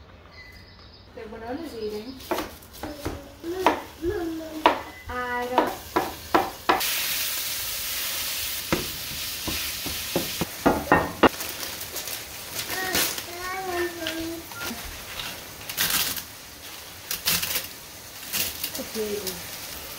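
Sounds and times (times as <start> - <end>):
food sizzling in a skillet: 1.9 - 19.9
utensil knocking against a pan: 5.5 - 6.8, 8.7 - 11.3.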